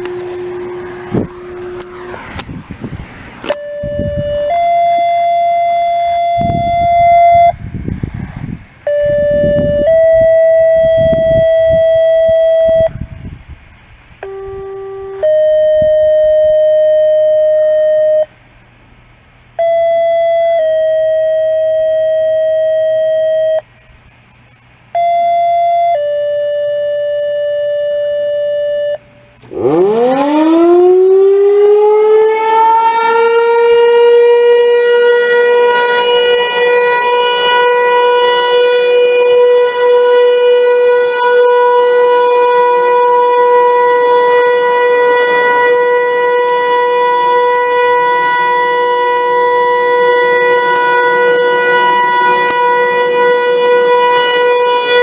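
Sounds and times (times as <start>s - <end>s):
warning siren wailing: 0.0s - 18.4s, 19.6s - 23.8s, 24.9s - 55.0s
radio activation tones: 3.3s - 7.7s, 14.2s - 18.3s.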